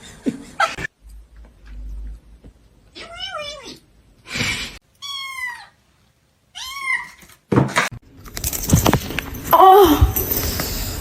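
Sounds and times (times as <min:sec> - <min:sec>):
knocks and rustling: 0:07.5 - 0:10.8.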